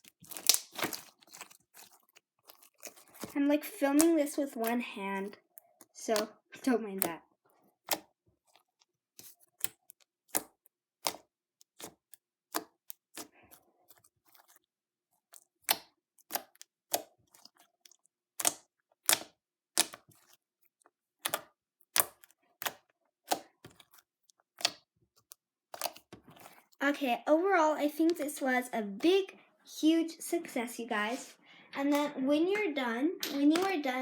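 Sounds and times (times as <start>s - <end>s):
slime crackle: 0.0s - 7.2s
slime squelching clicks and pops: 0.3s - 1.1s.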